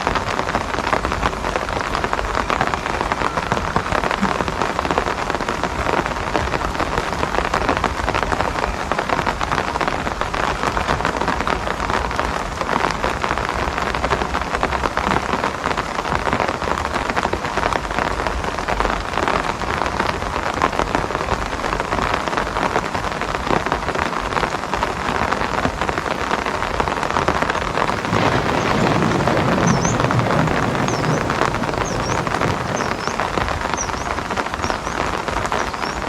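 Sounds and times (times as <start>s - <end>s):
rain falling: 27.9s - 35.9s.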